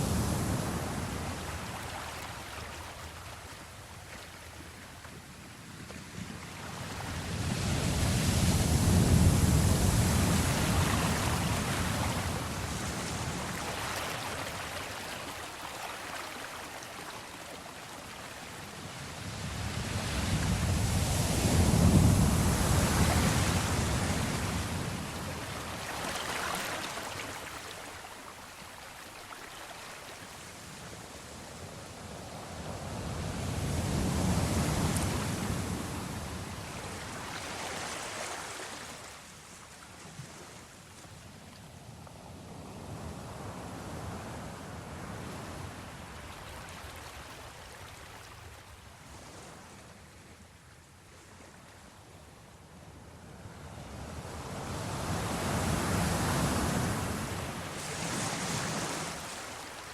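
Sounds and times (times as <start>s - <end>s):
sea waves surging: 0.0s - 4.9s, 6.6s - 39.5s, 54.8s - 59.9s.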